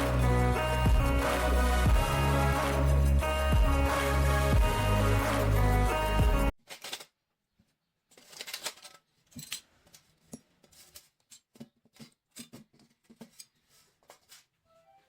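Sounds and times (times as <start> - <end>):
small clicks and scrapes: 6.6 - 7.1, 8.1 - 14.5.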